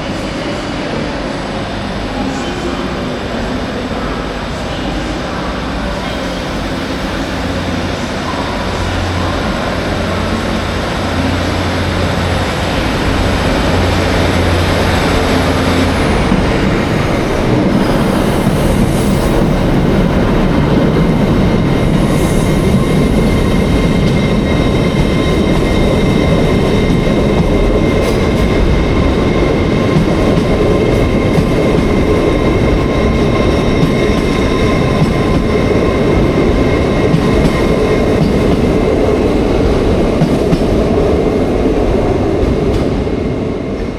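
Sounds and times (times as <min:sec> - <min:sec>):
train wheels rumbling on rails: 0:00.0 - 0:43.9
faint high steady tones: 0:05.8 - 0:10.8
low hum: 0:05.9 - 0:11.7.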